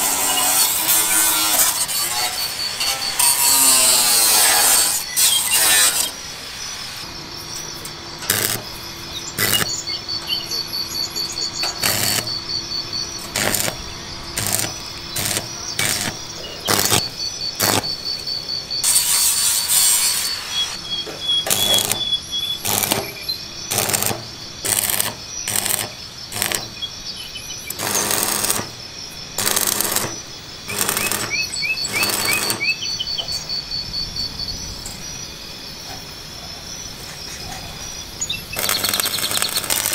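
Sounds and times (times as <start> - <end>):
pulsing insect trill: 0.0 - 39.9
bird chirps: 6.6 - 35.4, 37.0 - 39.9.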